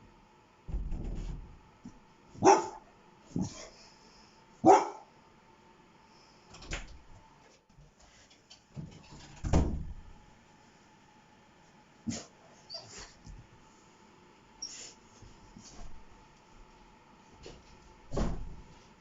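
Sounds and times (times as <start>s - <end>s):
dog barking: 2.4s - 3.6s, 4.6s - 5.1s.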